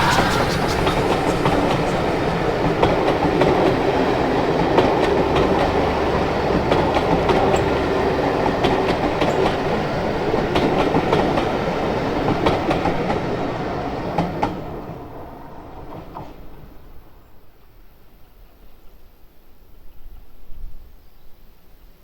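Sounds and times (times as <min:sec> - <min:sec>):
train rumbling on rails: 0:00.0 - 0:16.9.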